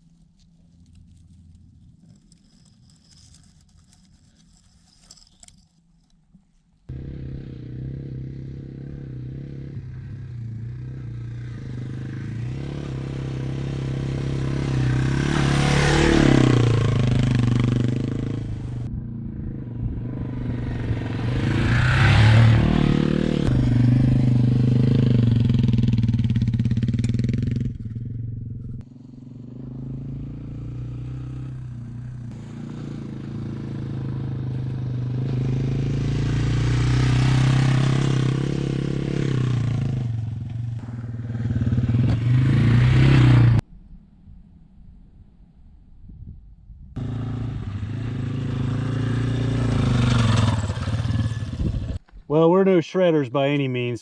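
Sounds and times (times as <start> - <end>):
motorcycle engines running: 6.9 - 43.6, 47.0 - 52.0.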